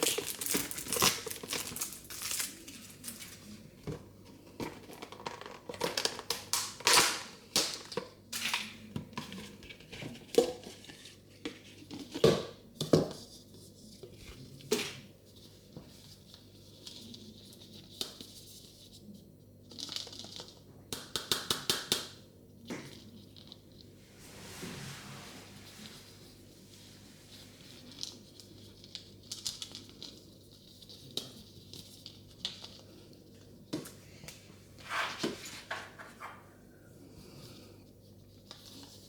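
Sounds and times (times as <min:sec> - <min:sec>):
plastic packaging crinkling and tearing: 0:00.0 - 0:03.4.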